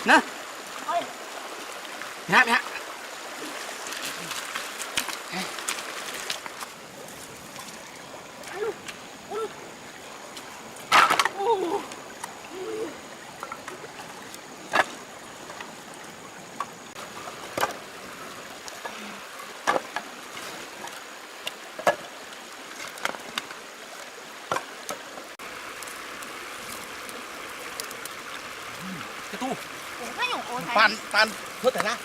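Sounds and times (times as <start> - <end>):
stream water running: 0.0 - 32.0
sharp knocks or splashes: 3.7 - 6.7, 10.4 - 11.4.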